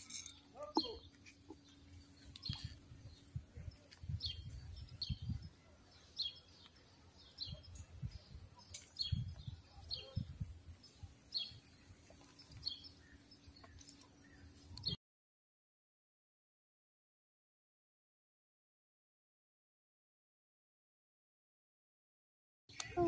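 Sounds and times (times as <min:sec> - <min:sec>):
bird chirping: 0:00.0 - 0:15.0, 0:22.7 - 0:23.0.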